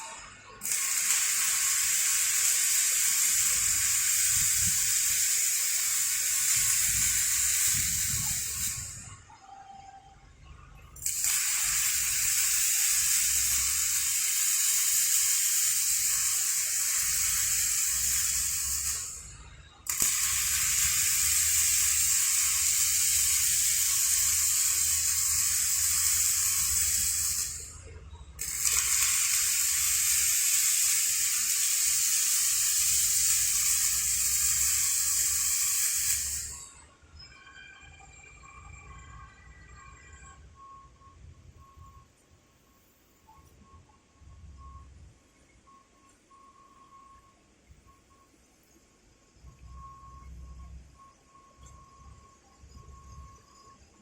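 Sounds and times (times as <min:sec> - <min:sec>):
welding arcs sizzling: 0:00.6 - 0:09.1, 0:11.0 - 0:27.8, 0:28.4 - 0:36.8.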